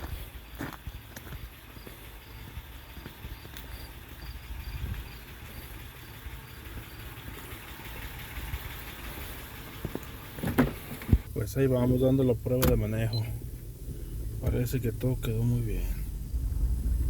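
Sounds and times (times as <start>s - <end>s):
vehicle engine idling: 0.0s - 17.0s
insect chirping: 0.3s - 10.3s.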